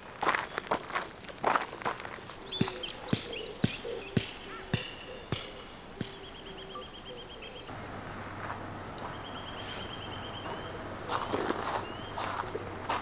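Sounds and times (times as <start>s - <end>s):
footsteps on a path: 0.0s - 6.8s, 7.4s - 13.0s
bird singing rapid trill: 2.1s - 7.7s, 9.0s - 12.7s.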